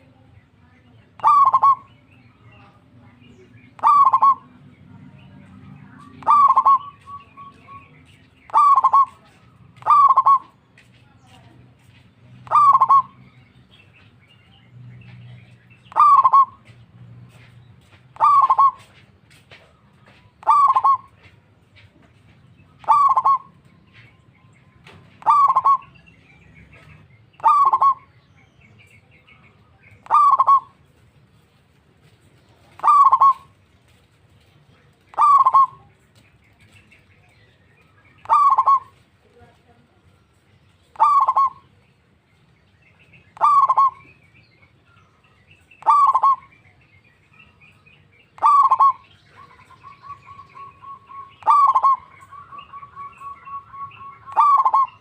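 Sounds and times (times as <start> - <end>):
dove cooing: 1.2 - 1.9, 3.7 - 4.6, 6.0 - 10.6, 12.4 - 13.2, 15.4 - 17.4, 18.2 - 19.0, 20.4 - 21.3, 22.8 - 23.6, 24.9 - 26.0, 26.8 - 28.1, 29.9 - 30.9, 32.6 - 34.0, 34.9 - 36.2, 38.2 - 39.0, 40.8 - 41.8, 43.4 - 44.2, 45.8 - 46.6, 48.3 - 55.0.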